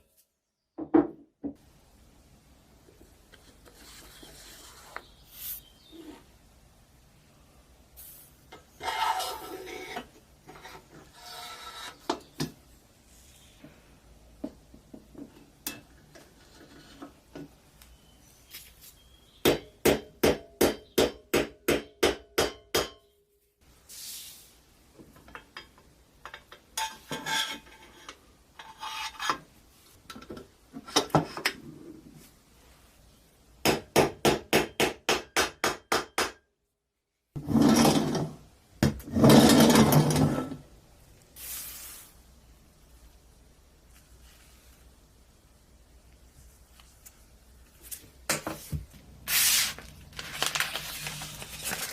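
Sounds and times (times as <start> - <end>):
tool scraping metal: 8.7 - 12.3, 26.8 - 29.5.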